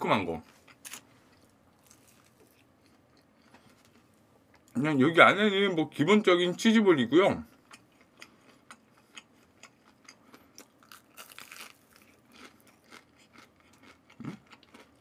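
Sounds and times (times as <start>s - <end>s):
crisp chewing crunches: 0.5s - 4.1s, 7.6s - 15.0s.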